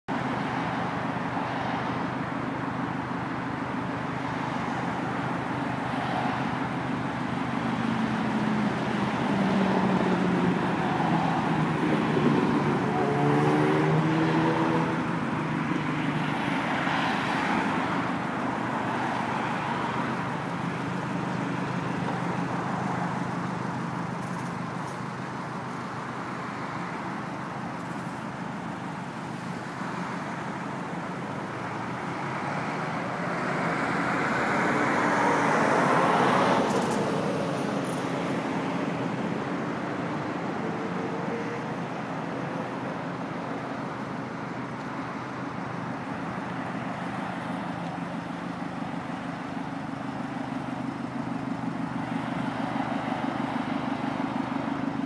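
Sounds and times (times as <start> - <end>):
car engine idling: 17.6 - 33.2, 42.6 - 55.0.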